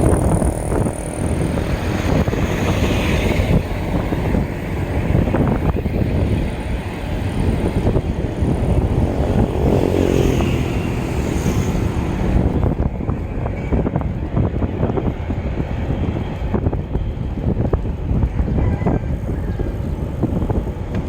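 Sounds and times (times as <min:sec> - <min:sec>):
vehicle engine passing: 0:00.0 - 0:12.9
wind buffeting microphone: 0:00.0 - 0:21.0.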